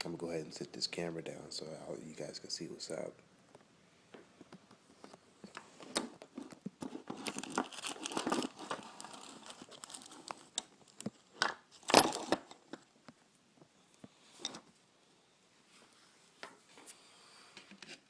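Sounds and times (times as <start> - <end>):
rustling: 4.5 - 14.9.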